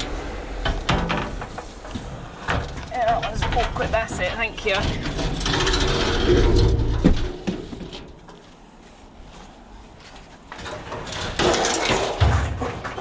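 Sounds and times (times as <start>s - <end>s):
heavy scrap handling noise: 0.0s - 13.0s
quiet shuffling: 7.3s - 10.7s.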